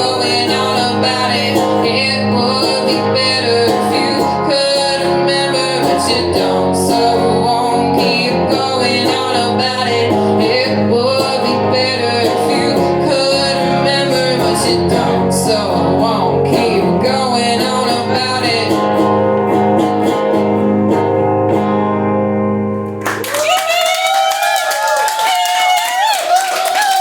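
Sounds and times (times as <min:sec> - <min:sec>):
person singing: 0:00.0 - 0:19.9
strummed guitar chords: 0:00.0 - 0:23.2.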